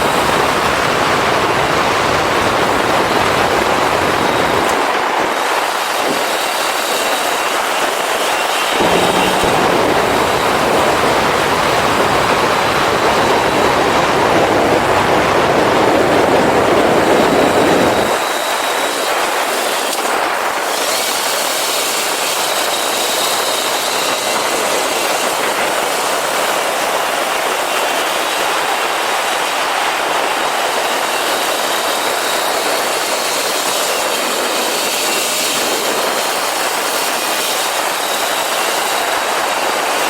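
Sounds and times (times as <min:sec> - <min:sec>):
wind on microphone: 0:08.7 - 0:18.6
motorcycle engine running: 0:08.8 - 0:18.2.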